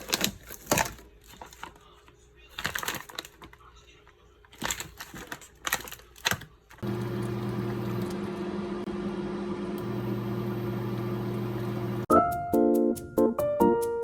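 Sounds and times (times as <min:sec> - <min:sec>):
appliance humming and whirring: 0:04.4 - 0:12.1.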